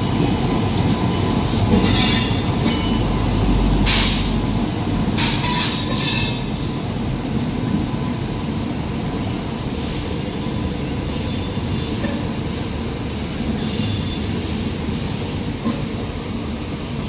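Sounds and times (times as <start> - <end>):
train rumbling on rails: 0.0 - 17.0
train wheels squealing: 0.7 - 4.4, 5.2 - 6.9, 9.7 - 15.4.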